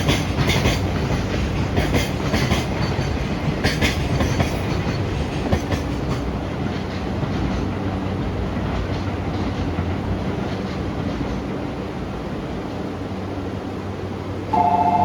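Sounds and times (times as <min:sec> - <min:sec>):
model train humming: 0:11.6 - 0:15.0.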